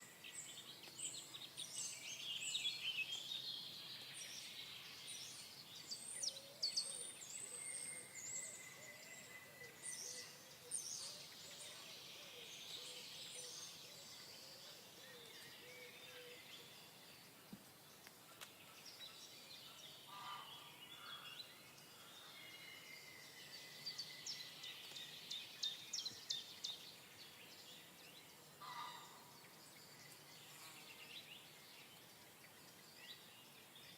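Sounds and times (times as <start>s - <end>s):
faint background hiss: 0.0s - 33.9s
songbirds chirping and trilling: 0.0s - 33.9s.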